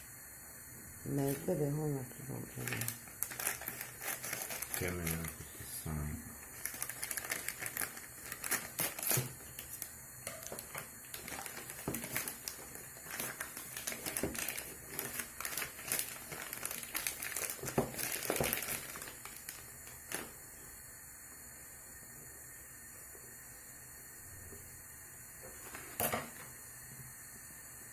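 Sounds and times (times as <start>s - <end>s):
crackles and clicks: 2.3s - 5.8s, 6.4s - 20.4s
packaging crinkling and rustling: 2.5s - 5.6s, 6.4s - 20.4s, 25.6s - 26.5s.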